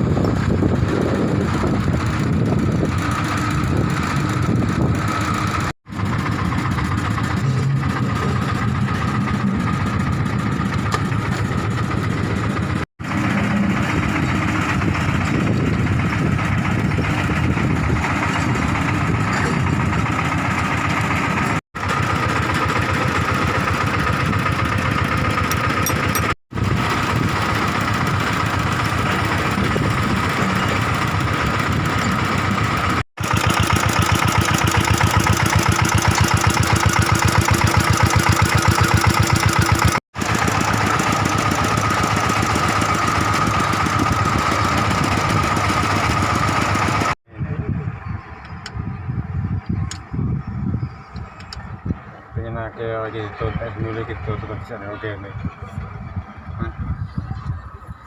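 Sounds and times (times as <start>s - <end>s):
excavator diesel engine running: 0.0s - 58.0s
constant high whine: 47.3s - 58.0s.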